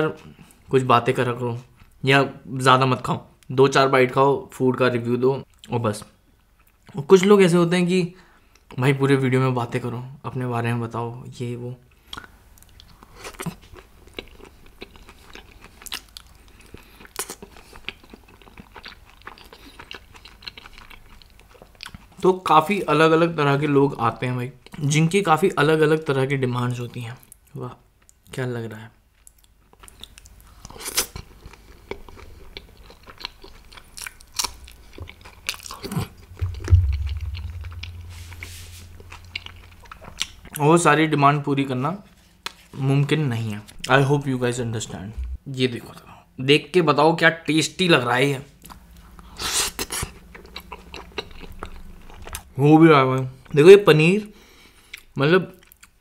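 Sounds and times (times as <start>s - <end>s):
person chewing food: 12.1s - 22.2s, 29.2s - 38.1s, 48.6s - 52.5s
low hum: 35.5s - 40.6s, 43.8s - 45.5s, 48.6s - 53.6s
low thump: 36.2s - 39.7s, 45.2s - 45.4s.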